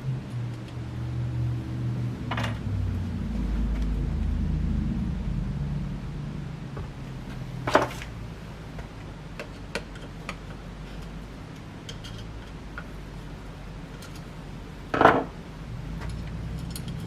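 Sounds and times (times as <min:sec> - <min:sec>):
low steady hum: 0:00.0 - 0:17.0
metal hardware clatter: 0:16.0 - 0:17.0
small metal clicks and clinks: 0:16.0 - 0:17.0.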